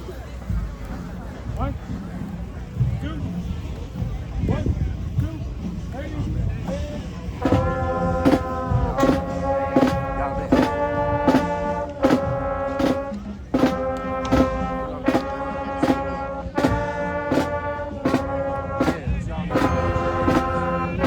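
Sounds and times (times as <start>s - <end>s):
steady drum beat: 0.4s - 21.0s
brass section playing chords: 7.4s - 21.0s.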